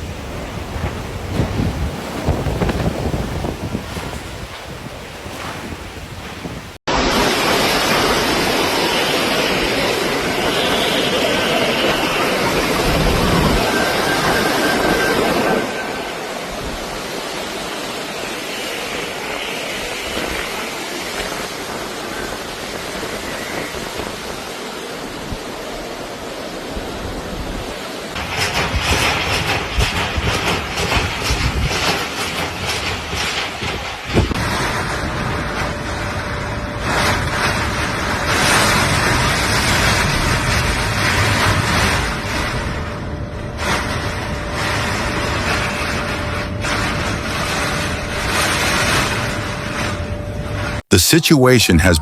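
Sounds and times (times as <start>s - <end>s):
typhoon wind: 0.0s - 28.9s
heavy rain: 0.0s - 52.0s.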